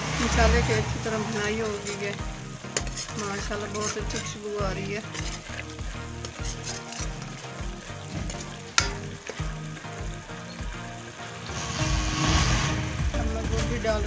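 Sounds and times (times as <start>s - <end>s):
masala sizzling in oil: 0.0s - 14.0s
metal spoon scraping pan: 0.2s - 12.8s
spoon clinking against pan: 8.2s - 9.2s.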